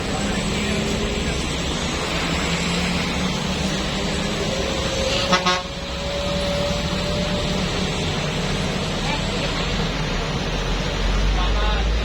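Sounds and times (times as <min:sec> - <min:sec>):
traffic noise: 0:00.0 - 0:12.0
vehicle engines running: 0:00.0 - 0:12.0
short horn blast: 0:05.1 - 0:05.8.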